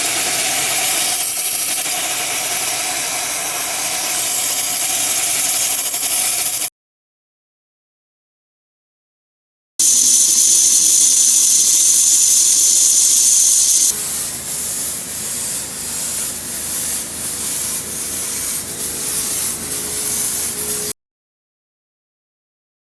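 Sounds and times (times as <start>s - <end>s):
cleaning spray hissing: 0.0s - 6.7s, 9.8s - 20.9s.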